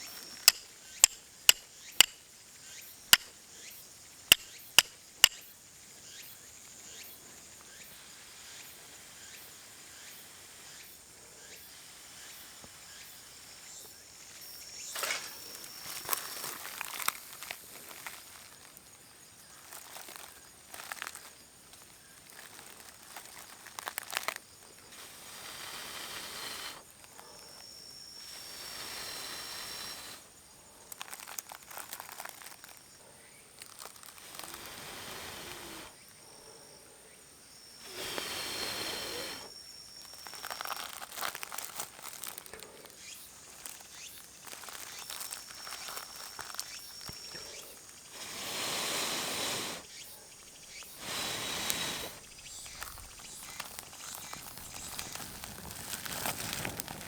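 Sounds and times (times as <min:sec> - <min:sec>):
high insect drone: 0:00.0 - 0:57.0
rustling and crinkling handling: 0:14.9 - 0:24.9, 0:30.9 - 0:32.9, 0:33.6 - 0:34.6, 0:40.0 - 0:47.9, 0:52.3 - 0:57.0
hissing: 0:24.8 - 0:27.4, 0:28.2 - 0:30.3, 0:34.0 - 0:36.0, 0:37.8 - 0:39.6, 0:44.7 - 0:57.0.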